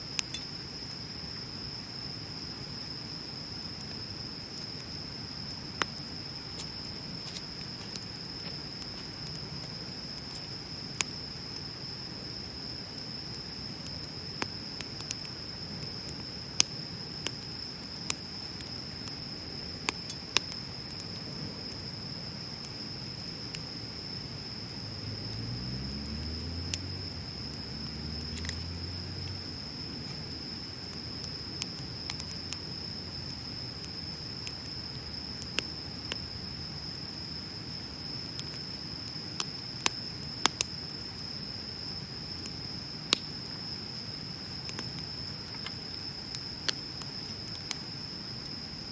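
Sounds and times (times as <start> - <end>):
bonfire crackling: 0.0 - 48.9
sharp pops of burning wood: 0.1 - 1.1, 5.6 - 11.7, 13.0 - 24.1, 38.4 - 41.2, 42.4 - 43.4, 44.2 - 48.0
faint low rumble: 24.4 - 33.7.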